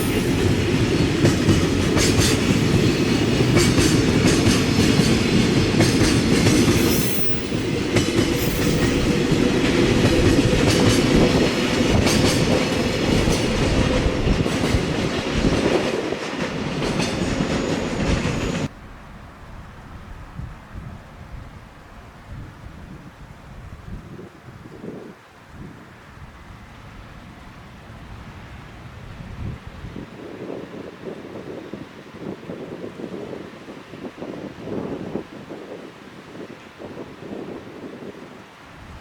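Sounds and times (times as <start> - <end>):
train passing: 0.0 - 21.9.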